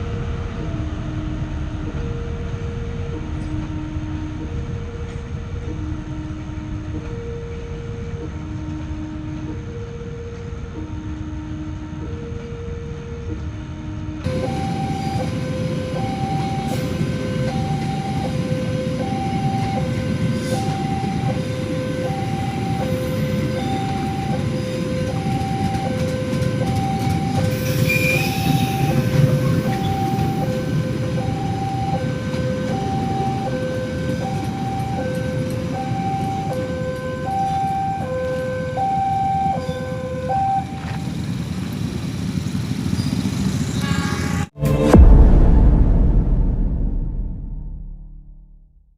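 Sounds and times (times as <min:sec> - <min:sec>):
passing train rumble: 0:00.0 - 0:48.7
level crossing alarm two tones: 0:14.2 - 0:40.8
brief high squeal: 0:27.6 - 0:28.9.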